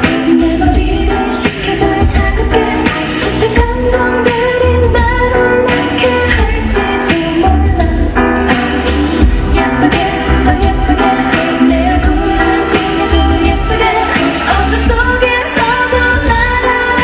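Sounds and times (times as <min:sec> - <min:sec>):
upbeat pop dance song: 0:00.0 - 0:17.0.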